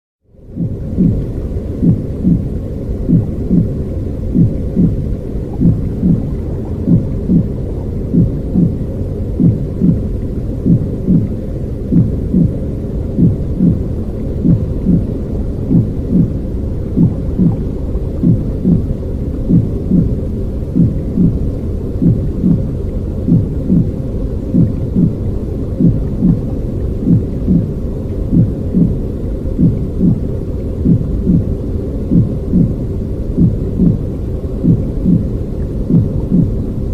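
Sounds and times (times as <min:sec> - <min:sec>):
deep muffled rumbling: 0:00.3 - 0:36.9
soft heartbeat thump: 0:00.6 - 0:12.6, 0:13.2 - 0:21.4, 0:22.0 - 0:24.0, 0:24.6 - 0:25.2, 0:25.8 - 0:29.0, 0:29.6 - 0:31.5, 0:32.1 - 0:32.8, 0:33.4 - 0:36.6.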